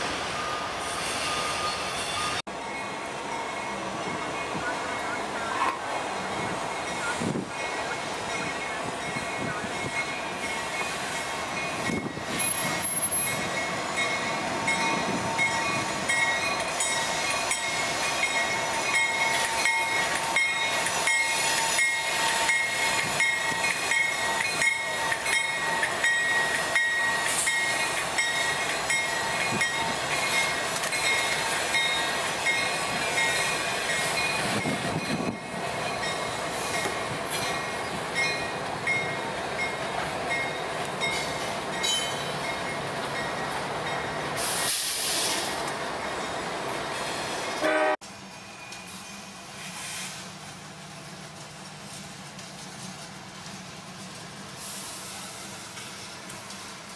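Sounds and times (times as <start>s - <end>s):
thin high squeal: 0.4s - 2.4s.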